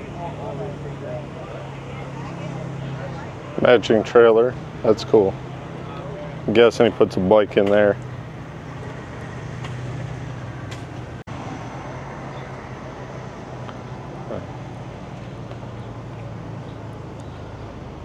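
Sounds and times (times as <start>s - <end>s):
engine idling hum: 0.0s - 18.0s
outdoor background noise: 0.0s - 18.0s.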